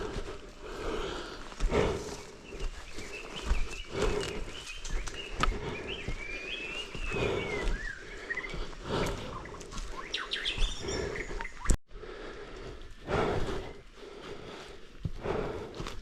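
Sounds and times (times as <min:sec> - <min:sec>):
scuffing noises: 0:00.0 - 0:11.2
birds chirping: 0:00.0 - 0:15.8.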